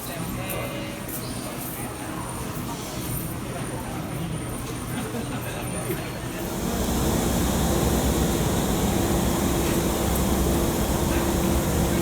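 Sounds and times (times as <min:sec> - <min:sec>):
electric train rumble and hum: 0:06.4 - 0:12.0.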